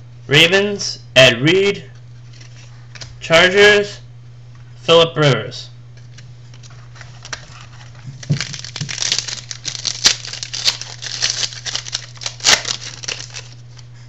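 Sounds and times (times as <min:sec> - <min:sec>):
low electrical hum: 0:00.0 - 0:14.0
foil wrapper crinkling: 0:06.6 - 0:13.8.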